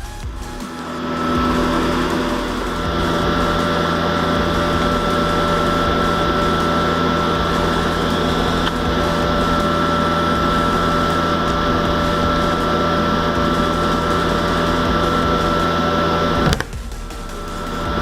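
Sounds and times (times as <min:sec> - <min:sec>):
small motor whirring: 0:00.0 - 0:18.0.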